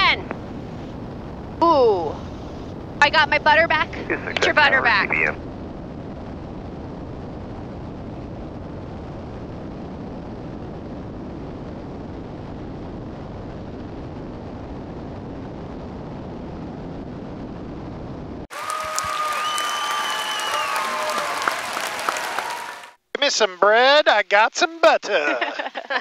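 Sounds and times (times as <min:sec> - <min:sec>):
airplane cabin engine rumble: 0:00.0 - 0:18.5.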